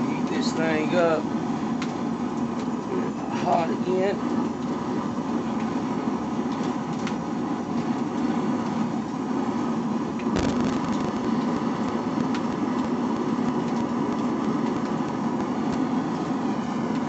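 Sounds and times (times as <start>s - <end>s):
forge roaring: 10.3s - 17.0s
sharp knock: 10.4s - 11.2s.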